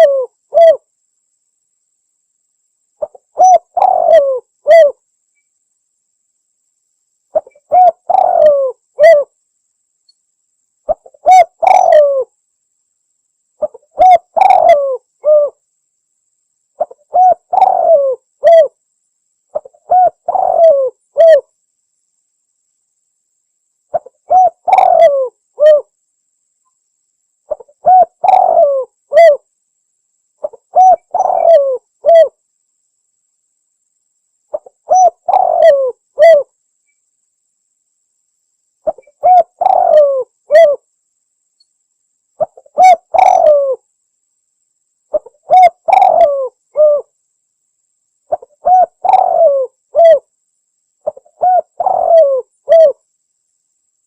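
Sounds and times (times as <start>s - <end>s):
dove cooing: 0.0s - 0.9s, 3.0s - 5.0s, 7.3s - 9.3s, 10.9s - 12.3s, 13.6s - 15.6s, 16.8s - 18.8s, 19.5s - 21.5s, 23.9s - 25.9s, 27.5s - 29.4s, 30.4s - 32.4s, 34.5s - 36.5s, 38.8s - 40.8s, 42.4s - 43.8s, 45.1s - 47.1s, 48.3s - 50.3s, 51.0s - 53.0s.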